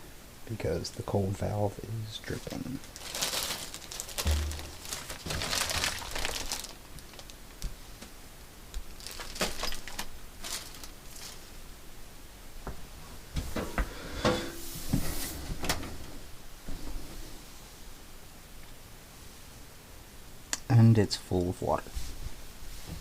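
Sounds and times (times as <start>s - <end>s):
knocks on washing machine: 4.2s - 5.0s
clicks and rustling: 8.7s - 11.4s.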